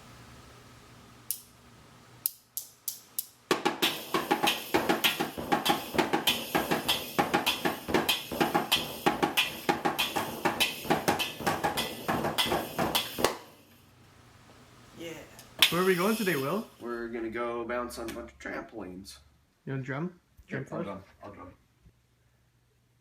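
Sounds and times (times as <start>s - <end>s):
busy drum beat: 3.5s - 13.4s, 15.6s - 16.7s.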